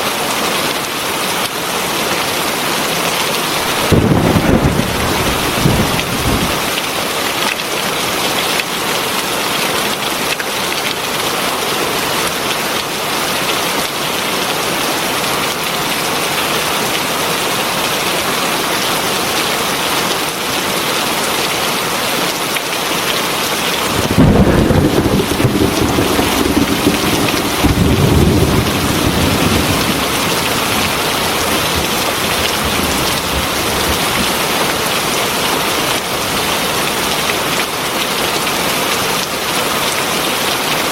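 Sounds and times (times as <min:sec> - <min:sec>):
heavy rain falling: 0:00.0 - 0:40.9
thunder rumbling: 0:03.6 - 0:06.8, 0:23.7 - 0:35.0.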